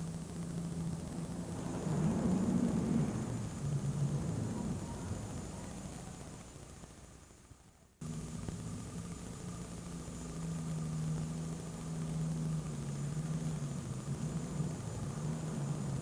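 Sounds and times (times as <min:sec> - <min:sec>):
tractor diesel engine running: 0:08.0 - 0:16.0.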